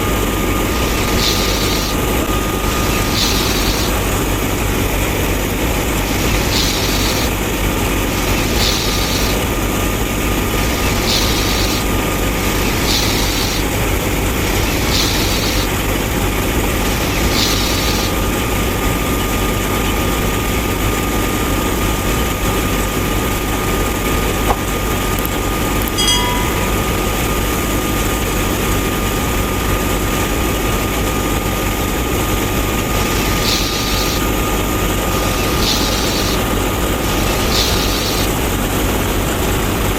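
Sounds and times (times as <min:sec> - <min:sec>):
small thresher motor whine: 0:00.0 - 0:39.9
short hiss: 0:35.4 - 0:36.4.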